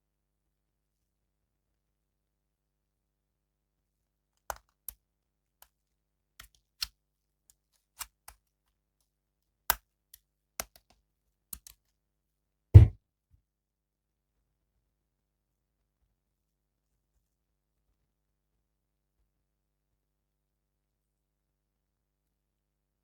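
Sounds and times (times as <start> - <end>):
loud thump: 12.8 - 13.0.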